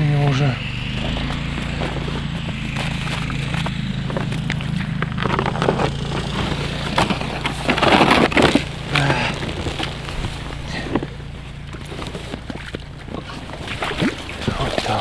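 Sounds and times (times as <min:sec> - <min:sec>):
wind on microphone: 0:00.0 - 0:11.7
river current rushing: 0:00.0 - 0:15.0
rustling burst: 0:00.0 - 0:15.0
scattered crackles: 0:00.0 - 0:15.0.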